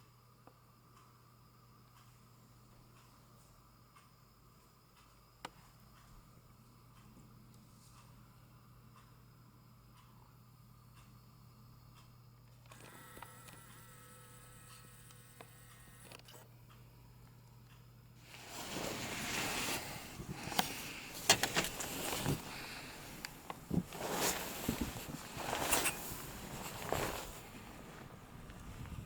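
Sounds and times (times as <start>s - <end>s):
faint steady hum: 0.0s - 29.0s
clothing rustle: 18.2s - 28.9s
footsteps crunching through snow: 18.3s - 28.8s.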